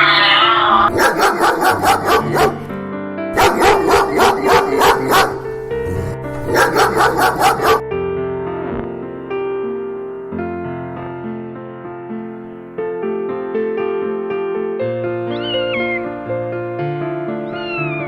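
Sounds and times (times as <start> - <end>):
piano music: 0.0 - 18.0
dog barking: 0.5 - 2.8, 3.4 - 7.8.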